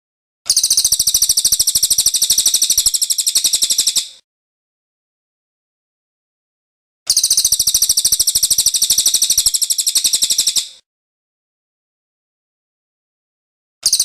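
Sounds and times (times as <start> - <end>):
bird trilling: 0.5 - 4.2, 7.1 - 10.8.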